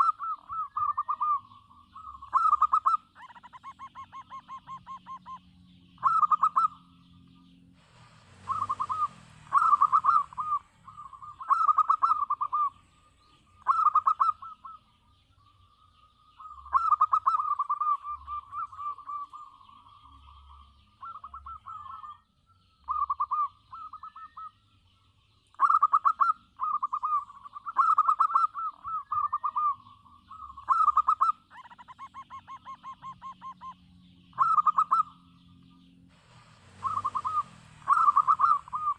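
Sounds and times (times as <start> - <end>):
dove cooing: 0.0 - 7.0, 8.0 - 14.9, 16.3 - 22.2, 22.8 - 24.6, 25.5 - 35.4, 36.1 - 38.9
short noisy burst: 36.1 - 38.9.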